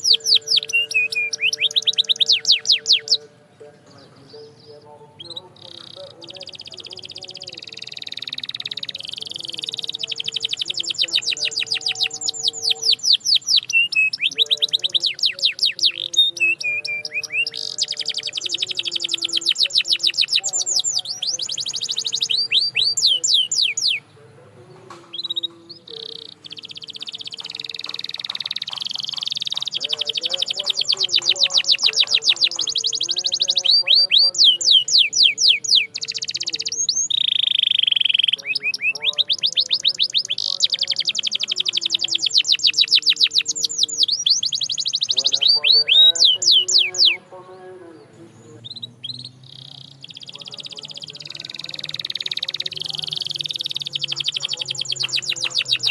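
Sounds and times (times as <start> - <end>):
canary singing trills: 0.0 - 55.9.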